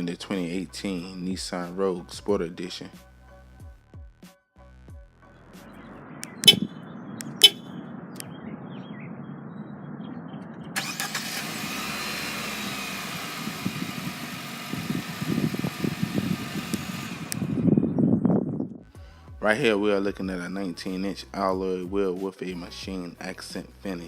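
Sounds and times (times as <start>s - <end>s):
sharp clicks: 6.2s - 7.6s.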